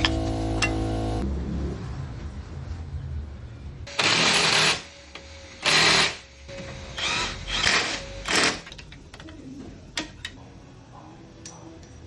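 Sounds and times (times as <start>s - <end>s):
impact wrench bursts: 3.9s - 4.9s.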